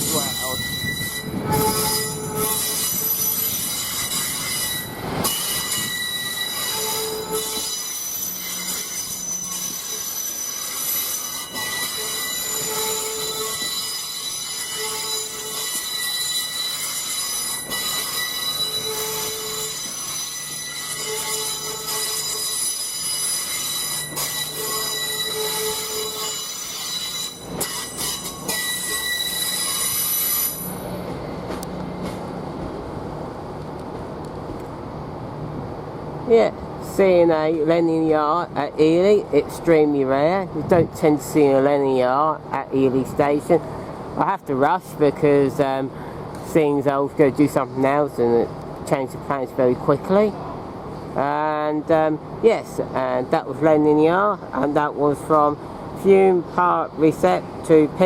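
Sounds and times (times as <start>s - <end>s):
train wheels squealing on rails: 0.0s - 32.3s.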